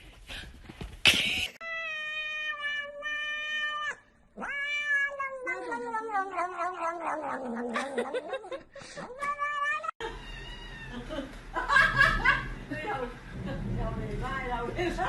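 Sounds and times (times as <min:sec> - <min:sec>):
cat meowing: 0:01.6 - 0:07.8, 0:09.0 - 0:11.0.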